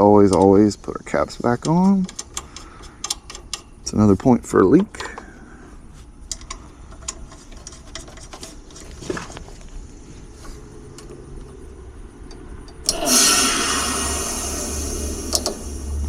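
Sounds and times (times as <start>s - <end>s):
heat pump unit hum: 0.0s - 16.0s
refrigerant rushing hiss: 12.9s - 16.0s.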